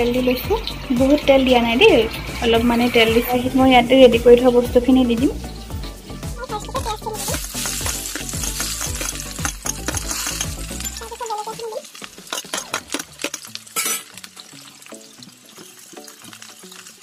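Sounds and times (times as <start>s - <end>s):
onions sizzling in hot oil: 0.0s - 17.0s
steel plate clicking against pan: 12.0s - 14.2s.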